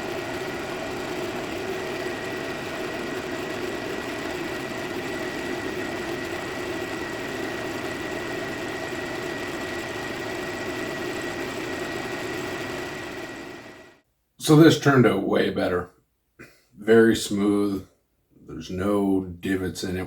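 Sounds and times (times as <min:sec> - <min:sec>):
machine running with high whine: 0:00.0 - 0:14.0.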